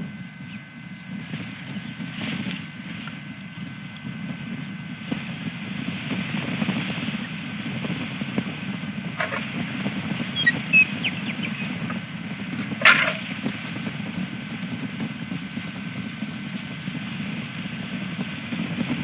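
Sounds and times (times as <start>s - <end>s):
steady rushing noise: 0.0s - 19.0s
faint high chirps: 10.3s - 11.8s.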